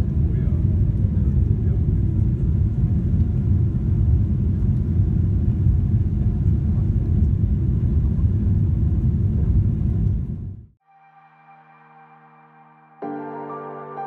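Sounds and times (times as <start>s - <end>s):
jet engine cabin rumble: 0.0s - 10.7s.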